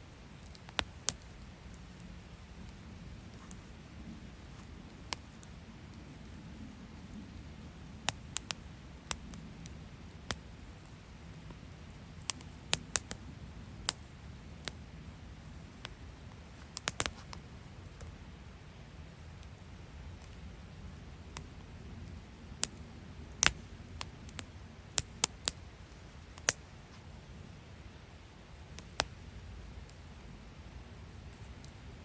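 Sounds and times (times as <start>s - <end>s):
campfire crackling: 0.0s - 32.0s
faint low rumble: 0.0s - 32.0s.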